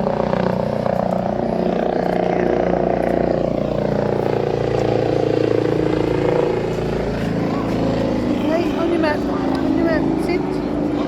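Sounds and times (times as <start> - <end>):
helicopter flying past: 0.0 - 11.0.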